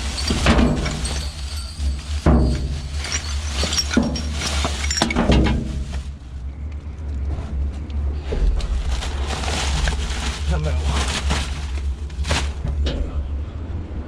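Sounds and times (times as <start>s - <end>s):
items clinking and clattering: 0.0s - 6.2s, 8.4s - 13.1s.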